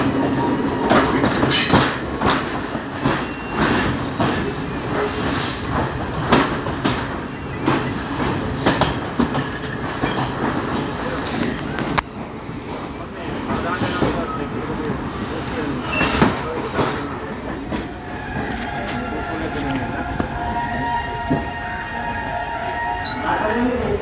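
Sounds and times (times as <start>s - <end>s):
train rumbling on rails: 0.0s - 24.0s
wheels clattering on track: 0.0s - 24.0s
wheel squeals: 17.6s - 24.0s.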